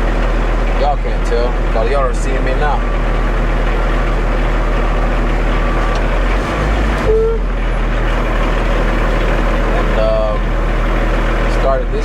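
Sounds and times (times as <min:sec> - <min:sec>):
diesel engine and turning drum: 0:00.0 - 0:12.0
short single tone: 0:07.0 - 0:07.6.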